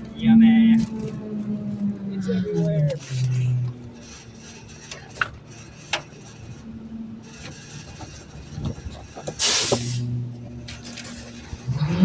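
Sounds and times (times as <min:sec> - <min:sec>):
air hiss burst: 0:09.4 - 0:10.0.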